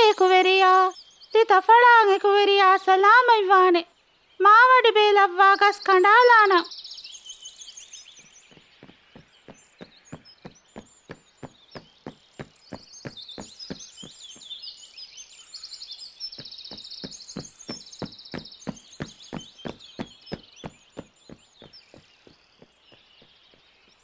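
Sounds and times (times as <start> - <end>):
birds chirping: 0.0 - 24.0
cartoon footstep taps: 8.5 - 14.2, 16.4 - 22.1.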